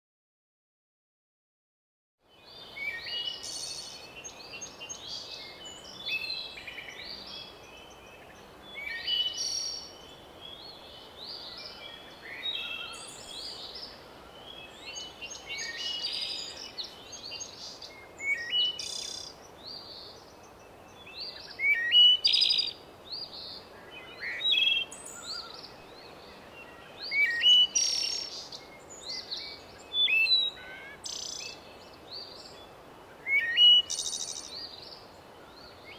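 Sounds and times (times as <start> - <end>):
songbirds singing and chirping: 2.2 - 35.9
steady background hiss: 2.2 - 35.9.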